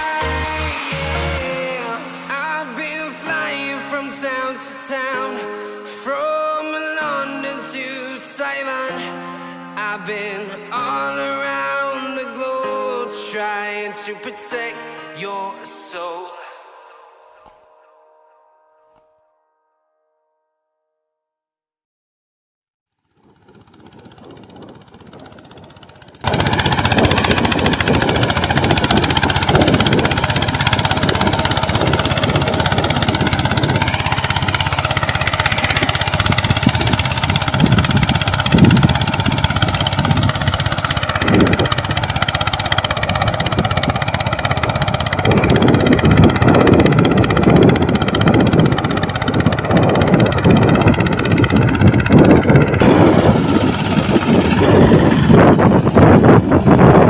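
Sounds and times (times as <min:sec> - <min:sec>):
small tractor engine running: 0:23.0 - 0:57.0.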